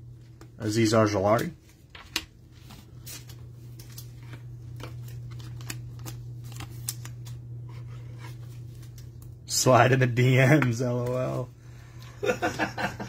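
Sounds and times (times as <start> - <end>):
steady low hum: 0.0 - 13.0
cards clicking and sliding: 2.0 - 9.1.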